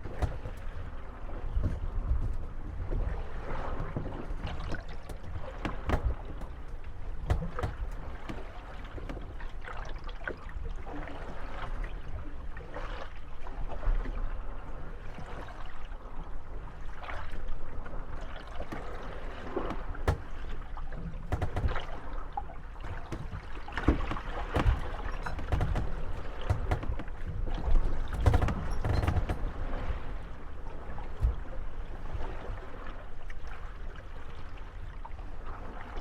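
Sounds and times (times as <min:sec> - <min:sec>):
boats knocking together: 0:00.0 - 0:09.6, 0:18.6 - 0:31.6
wooden boat hulls creaking: 0:00.0 - 0:11.9, 0:16.8 - 0:32.9
low wash of water: 0:00.0 - 0:36.0.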